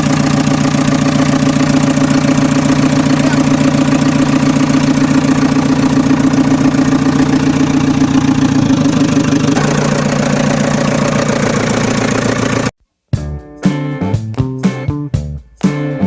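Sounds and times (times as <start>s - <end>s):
tractor engine idling: 0.0s - 12.8s.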